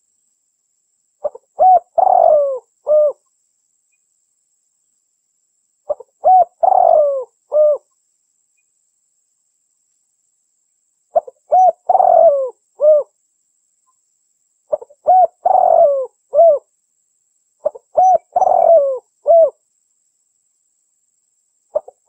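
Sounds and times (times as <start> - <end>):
dove cooing: 1.2 - 3.2, 5.9 - 7.9, 11.1 - 13.1, 14.7 - 16.7, 17.6 - 19.6, 21.7 - 22.0.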